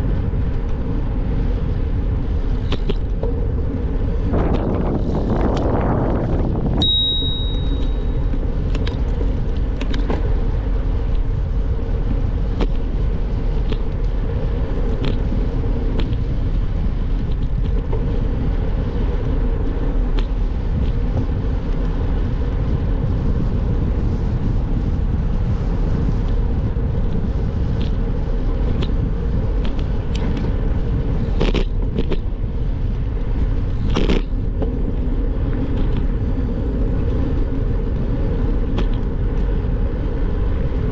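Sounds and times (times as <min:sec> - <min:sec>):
bicycle tyres rolling on road: 0:00.0 - 0:40.9
wind on microphone: 0:00.0 - 0:40.9
brief high-pitched tone: 0:06.8 - 0:08.1
light clicks and rattles: 0:07.5 - 0:10.3.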